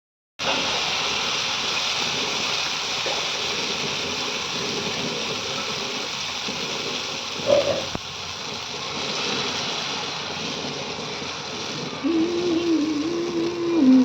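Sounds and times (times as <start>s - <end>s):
batter sizzling in oil: 0.4s - 14.0s.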